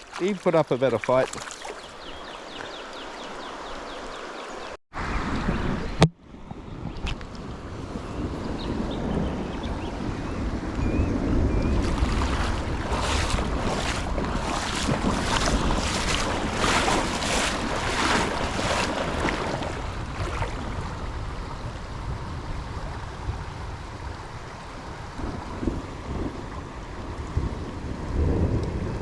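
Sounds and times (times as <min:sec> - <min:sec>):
close splashes: 0:00.0 - 0:04.4, 0:11.6 - 0:21.8
river water running: 0:00.0 - 0:05.1, 0:11.5 - 0:28.6
wind on microphone: 0:05.0 - 0:29.0.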